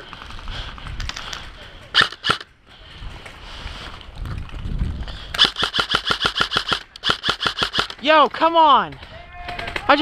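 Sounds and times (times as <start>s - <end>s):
low rumbling movement noise: 0.0s - 5.4s
airsoft rifle firing bursts: 2.0s - 2.4s, 5.4s - 8.2s.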